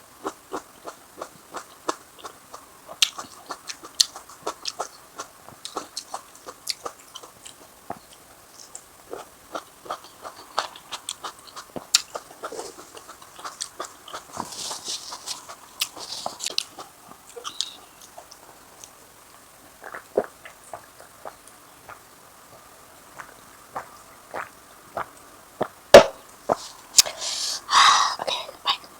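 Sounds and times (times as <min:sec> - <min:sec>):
crunchy chewing: 0:00.0 - 0:28.9
wet mouth clicks: 0:03.0 - 0:07.6, 0:15.1 - 0:17.8, 0:26.0 - 0:28.9
brief hiss: 0:26.0 - 0:27.7.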